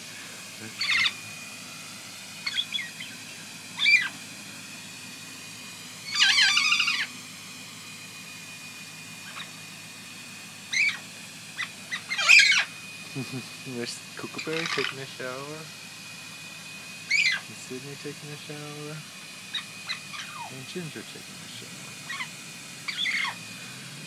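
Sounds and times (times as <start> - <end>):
parrots squawking: 0.7 - 1.2, 2.4 - 4.2, 6.0 - 7.1, 9.2 - 9.6, 10.7 - 11.0, 11.6 - 12.8, 14.4 - 15.0, 17.1 - 17.5, 19.5 - 20.6, 22.0 - 23.4.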